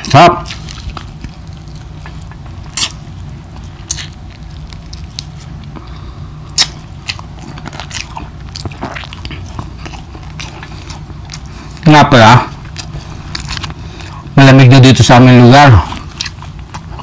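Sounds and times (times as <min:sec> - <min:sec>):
man chewing food: 0:00.0 - 0:14.4, 0:15.7 - 0:17.0.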